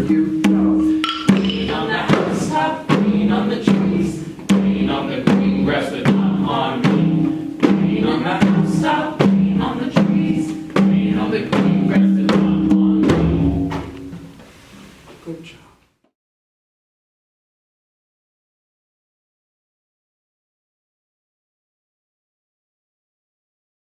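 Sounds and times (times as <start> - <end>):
low repeating accompaniment: 0.0 - 14.3
steady drum beat: 0.0 - 14.4.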